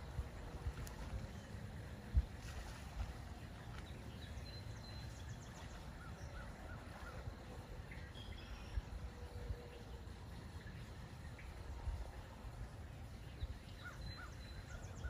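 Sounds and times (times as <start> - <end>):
faint birdsong: 0.0 - 15.0
wind rumble on microphone: 0.0 - 15.0.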